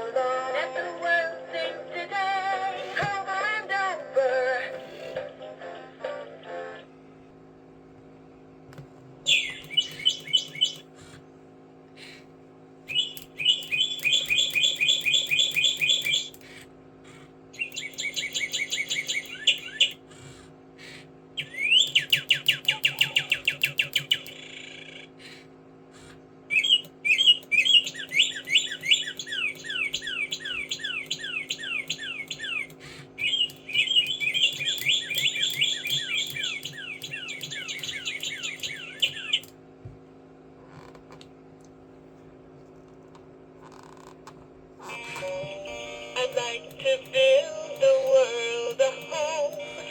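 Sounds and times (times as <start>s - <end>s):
steady low hum: 0.0s - 49.9s
bird trills and chirps: 9.3s - 10.9s, 12.9s - 16.6s, 17.6s - 20.0s, 21.4s - 25.1s, 26.5s - 39.5s.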